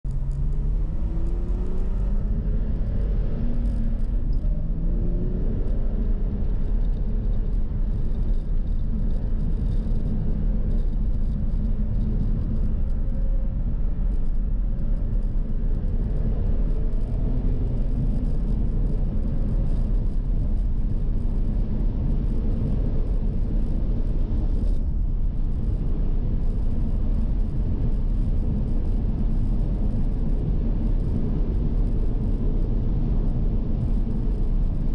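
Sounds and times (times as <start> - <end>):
low road noise rumble: 0.0 - 34.9
car engine accelerating: 0.1 - 13.1.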